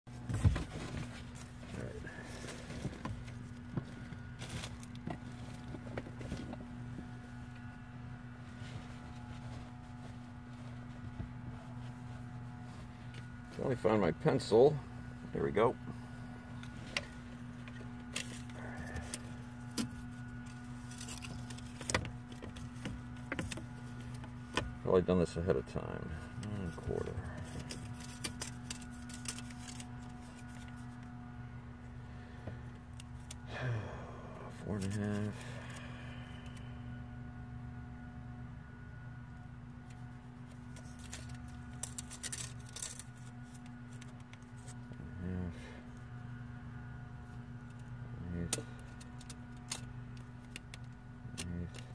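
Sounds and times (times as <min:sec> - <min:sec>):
steady low hum: 0:00.1 - 0:51.9
small tools clicking and rattling: 0:40.8 - 0:44.4.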